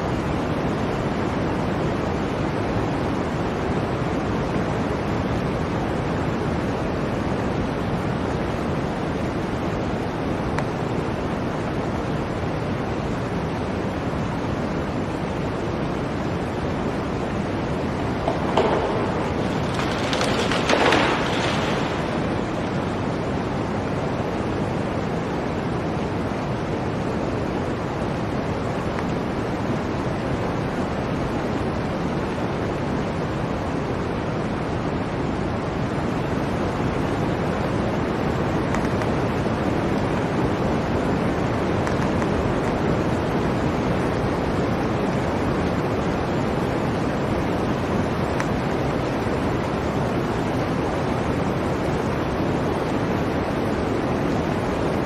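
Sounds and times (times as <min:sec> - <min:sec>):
blizzard wind howling: 0:00.0 - 0:55.0.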